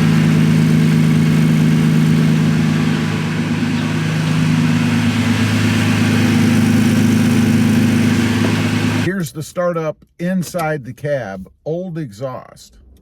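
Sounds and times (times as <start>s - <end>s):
pickup engine idling: 0.0s - 9.1s.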